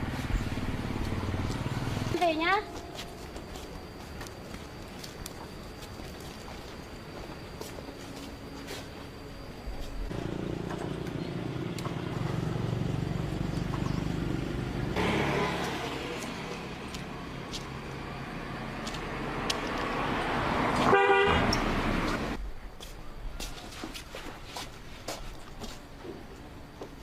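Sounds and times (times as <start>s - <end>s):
vehicle engine starting and running: 10.1s - 22.4s
short horn honk: 20.9s - 21.5s.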